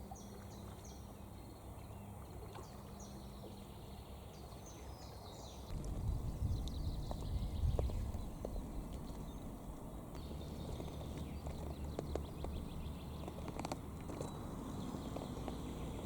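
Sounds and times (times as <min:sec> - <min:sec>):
water lapping and splashing: 0:00.0 - 0:16.0
low steady rumble: 0:05.7 - 0:16.0.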